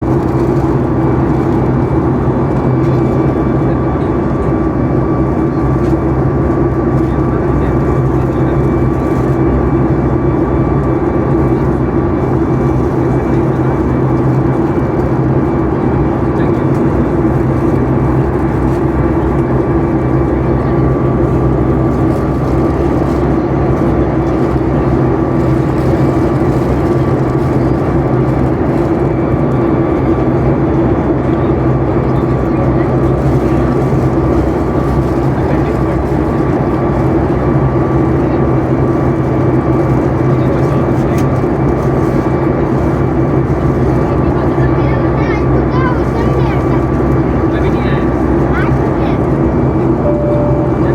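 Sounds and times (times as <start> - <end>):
rush of cabin air: 0.0 - 29.1
airplane engines droning: 0.0 - 50.9.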